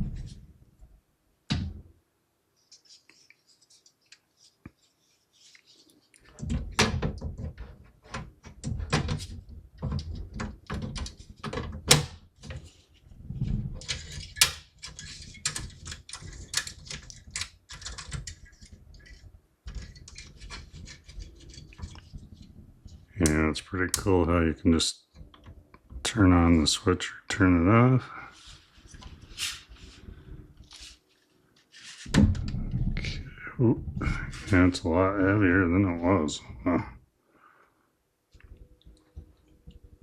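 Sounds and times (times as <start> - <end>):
computer parts clicking and clattering: 13.8 - 22.1.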